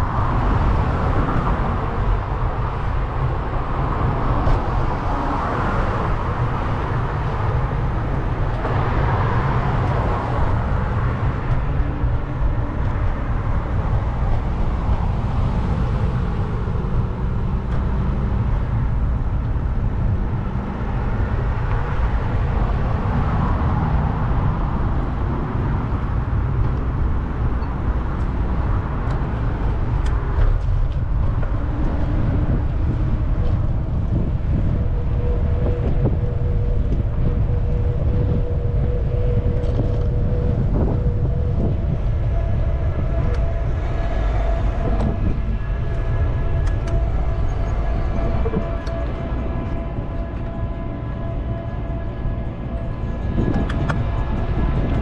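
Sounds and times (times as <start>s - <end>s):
city traffic noise: 0.0s - 55.0s
wind rumbling on microphone: 0.0s - 55.0s
steady tone: 31.0s - 55.0s.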